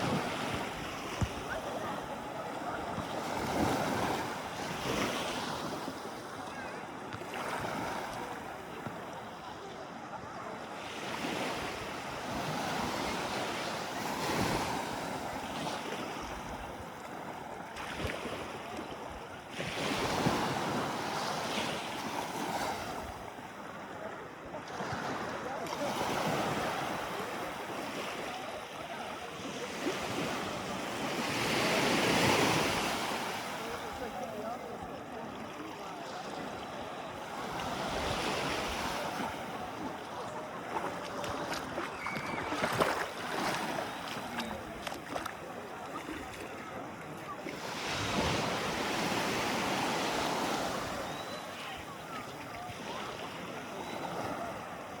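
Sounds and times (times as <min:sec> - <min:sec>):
sea water washing in surges: 0:24.5 - 0:55.0.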